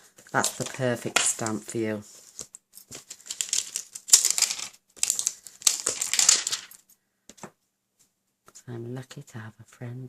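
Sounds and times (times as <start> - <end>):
crinkly packaging rustling: 0.0 - 6.9.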